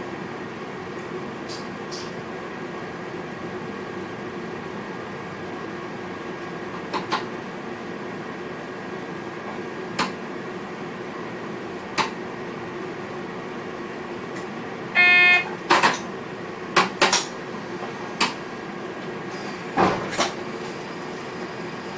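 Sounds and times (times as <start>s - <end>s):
buzzing beep: 15.0s - 15.5s
cab equipment hum: 15.0s - 16.3s.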